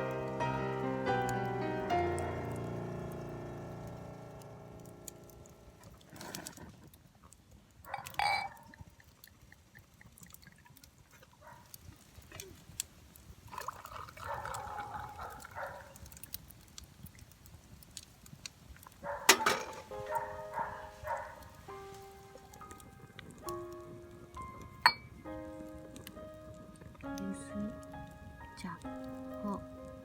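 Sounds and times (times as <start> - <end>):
liquid being poured: 7.9 - 12.0, 13.2 - 16.3.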